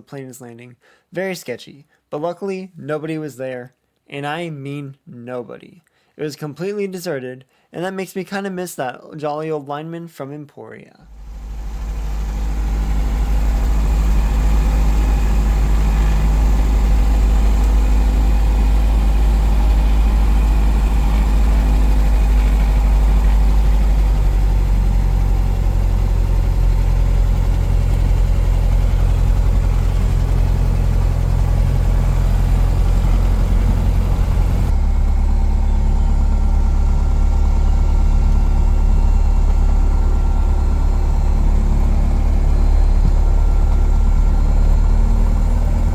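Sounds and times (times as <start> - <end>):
propeller plane engine drone: 11.1 - 45.9.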